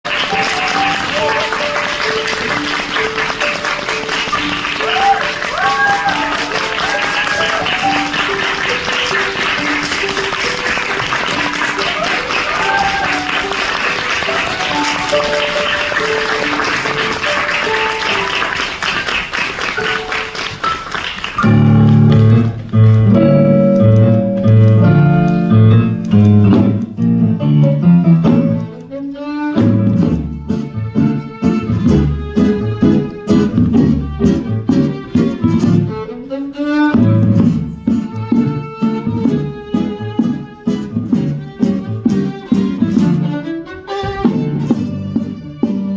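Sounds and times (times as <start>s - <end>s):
audience applauding: 0.0s - 27.0s, 30.9s - 36.0s
live instrumental music: 0.1s - 45.9s.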